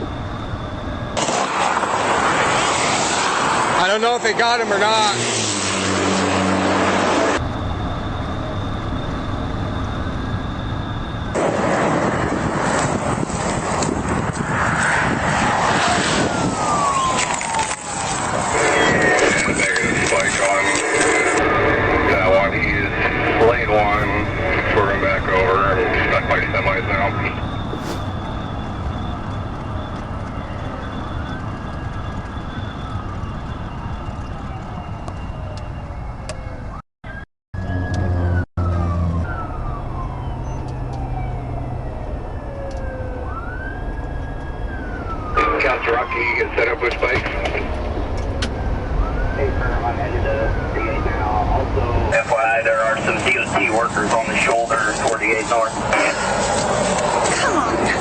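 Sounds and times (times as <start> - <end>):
vehicle noise at speed: 5.0 - 7.9, 21.4 - 25.0, 27.6 - 29.6
vehicle rumble at highway speed: 21.5 - 25.8, 27.5 - 32.3
falling tone: 27.7 - 28.7.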